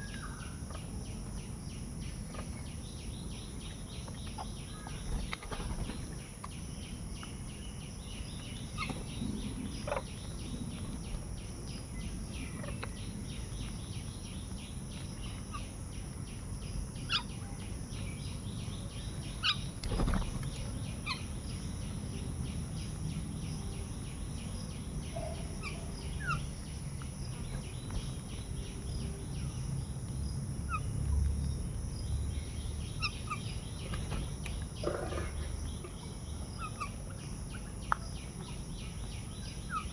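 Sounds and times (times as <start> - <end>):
birds chirping: 0.0 - 39.9
steady background noise: 0.0 - 39.9.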